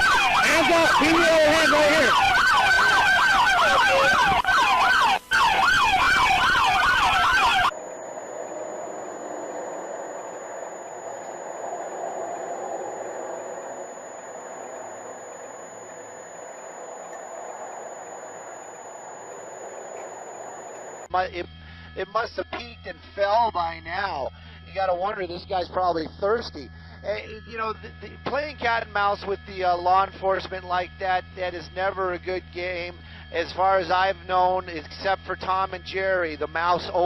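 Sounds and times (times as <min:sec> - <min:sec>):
police siren yelping: 0:00.0 - 0:21.1
thin high whine: 0:00.0 - 0:22.1.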